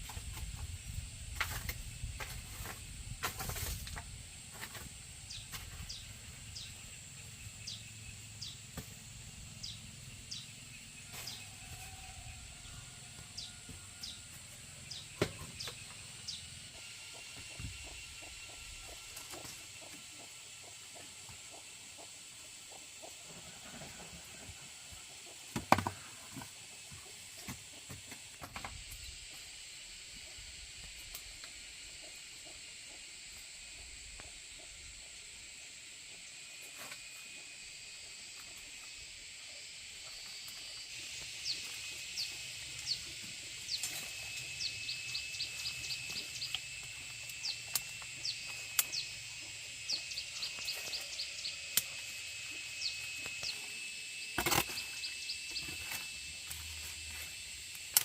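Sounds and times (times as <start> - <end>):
steady high drone: 29.0 - 58.0
rapid chirping animal calls: 38.9 - 56.4.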